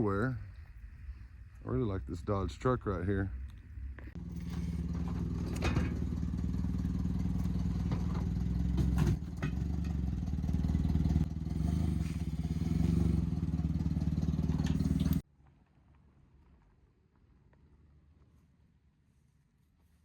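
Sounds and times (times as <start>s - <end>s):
engine running with pulsing note: 4.2s - 15.2s.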